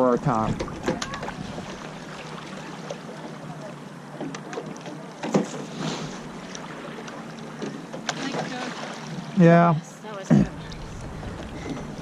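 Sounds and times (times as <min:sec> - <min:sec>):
water wash: 0:00.0 - 0:12.0
wind on microphone: 0:10.4 - 0:12.0.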